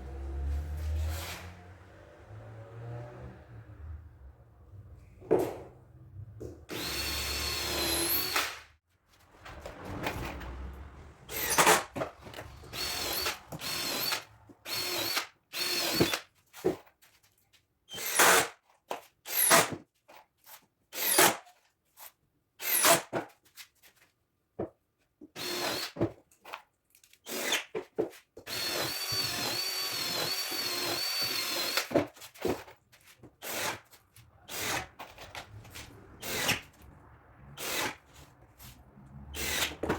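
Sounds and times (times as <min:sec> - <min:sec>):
power drill driving screws: 0:00.8 - 0:01.5, 0:06.7 - 0:08.6, 0:11.3 - 0:16.2, 0:17.9 - 0:18.5, 0:19.3 - 0:19.7, 0:21.0 - 0:21.4, 0:22.6 - 0:23.1, 0:25.4 - 0:26.0, 0:27.2 - 0:27.7, 0:28.5 - 0:32.0, 0:33.4 - 0:33.9, 0:34.5 - 0:35.5, 0:36.2 - 0:36.7, 0:37.6 - 0:38.0, 0:39.4 - 0:39.9.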